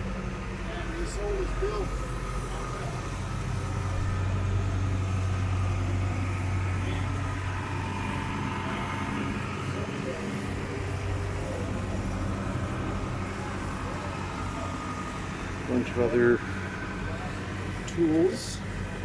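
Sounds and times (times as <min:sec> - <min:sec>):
low engine drone: 0:00.0 - 0:19.0
faint voices: 0:00.6 - 0:19.0.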